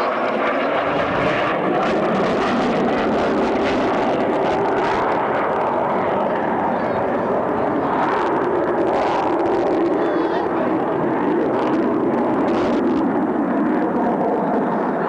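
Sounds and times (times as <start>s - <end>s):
aircraft engine rush: 0.0s - 15.0s.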